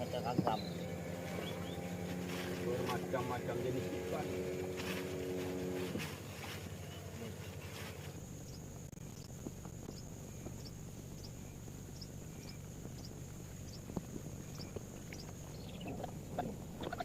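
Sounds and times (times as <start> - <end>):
high insect drone: 0.0 - 17.0
steady low rumble: 0.0 - 17.0
short high insect chirps: 7.7 - 17.0.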